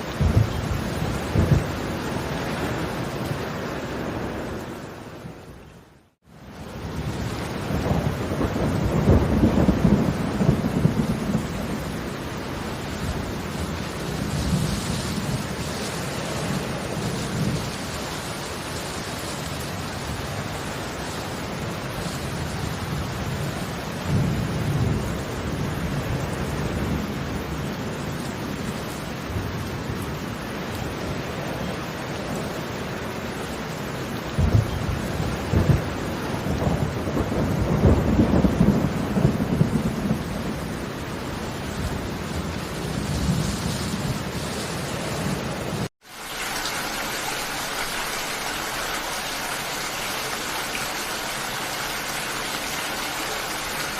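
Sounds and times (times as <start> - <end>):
distant thunder rumbling: 0.0 - 5.5, 6.6 - 15.6, 34.2 - 44.4
steady rain falling: 0.0 - 53.9.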